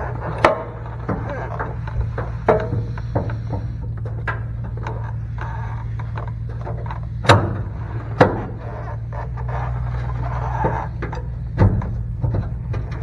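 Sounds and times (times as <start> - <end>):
sharp knocks: 0.0 - 9.1
steady low hum: 0.0 - 13.0.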